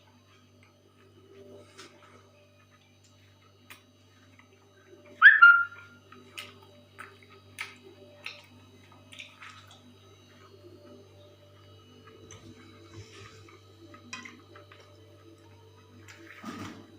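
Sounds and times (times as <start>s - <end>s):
steady low hum: 0.0s - 16.9s
sharp animal cry: 5.2s - 5.8s.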